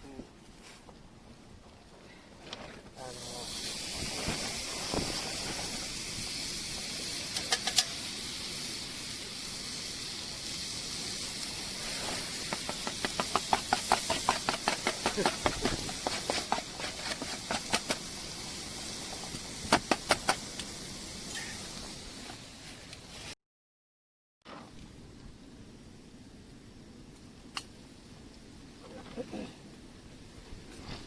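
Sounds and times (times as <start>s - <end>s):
meat sizzling in a frying pan: 3.1s - 22.2s.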